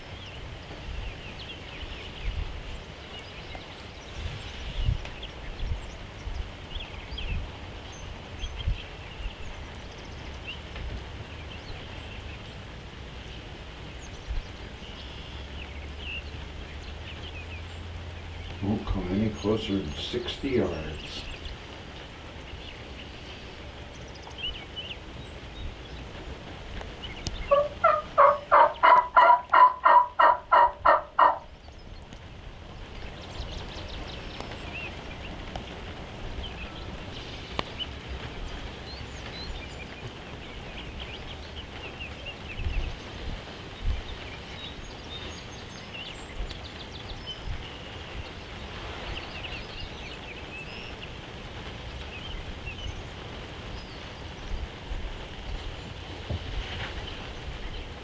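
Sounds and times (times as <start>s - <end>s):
background hiss: 0.0s - 58.0s
turkey yelping: 27.5s - 31.5s.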